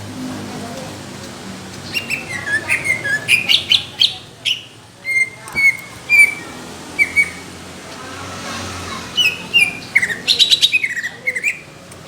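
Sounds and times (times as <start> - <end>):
bird singing chirps and whistles: 1.9 - 7.4, 9.2 - 11.7.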